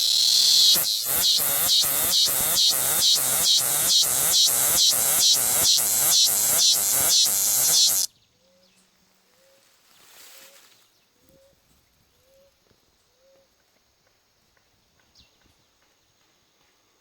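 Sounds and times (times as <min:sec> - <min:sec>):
cicada buzzing: 0:00.0 - 0:08.1.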